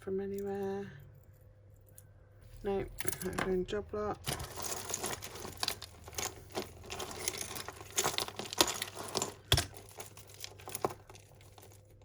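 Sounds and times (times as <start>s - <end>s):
beads and chain clicking: 4.2s - 12.0s.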